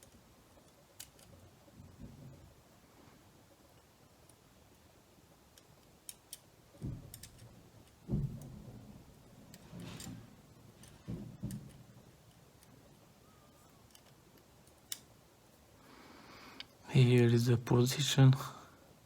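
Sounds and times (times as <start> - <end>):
plastic parts clicking: 5.6 - 8.0, 13.6 - 15.1
plastic parts knocking: 6.8 - 12.0.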